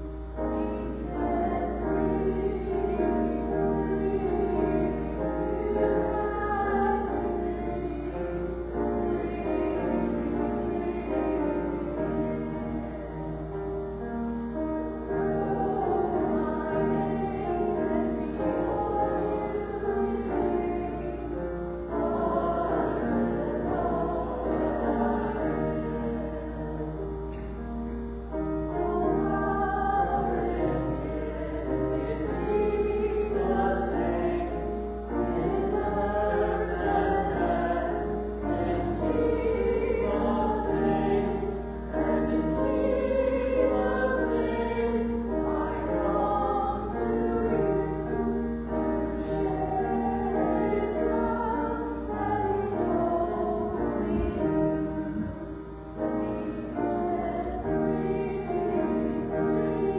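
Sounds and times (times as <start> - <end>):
steady low hum: 0.0 - 59.9
voices singing a hymn: 0.0 - 59.9.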